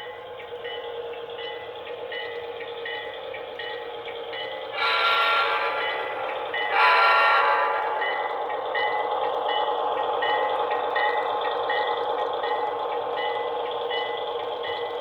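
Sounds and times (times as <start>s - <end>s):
model train engine sound: 0.0s - 15.0s
model train horn blasts: 4.7s - 8.5s.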